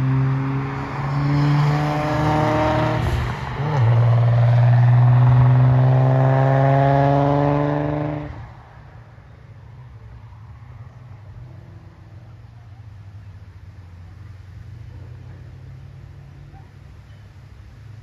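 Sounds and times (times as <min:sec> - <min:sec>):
car engine accelerating hard: 0:00.0 - 0:08.6.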